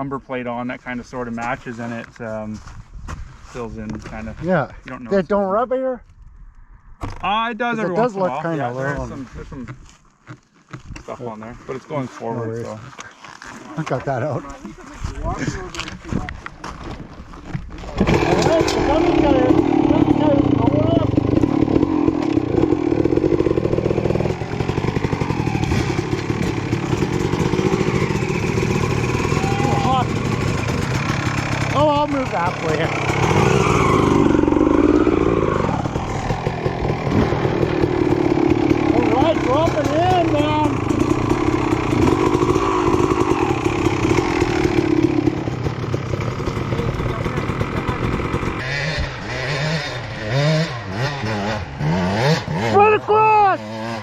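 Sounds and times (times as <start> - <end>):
dirt bike engine running: 17.8 - 54.0.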